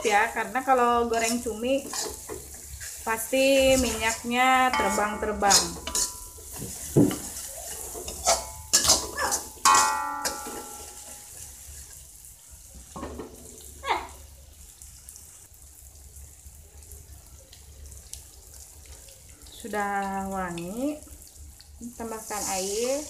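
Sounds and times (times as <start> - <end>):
spice paste sizzling in a wok: 0.0 - 23.0
utensils scraping a pan: 1.0 - 11.5
ringing metal clang: 4.7 - 6.3, 9.6 - 11.1.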